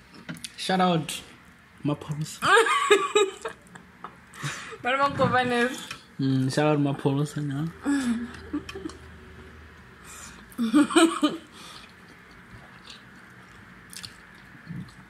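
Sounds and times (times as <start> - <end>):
chewing and wet mouth sounds: 11.6 - 15.0.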